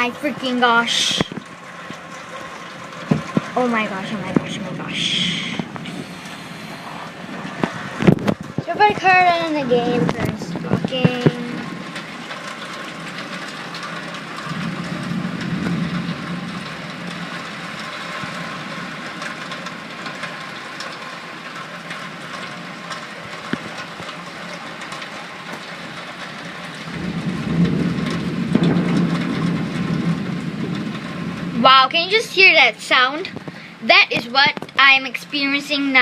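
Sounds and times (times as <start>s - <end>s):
heavy rain pouring: 0.0s - 36.0s
low rumble: 3.0s - 12.2s.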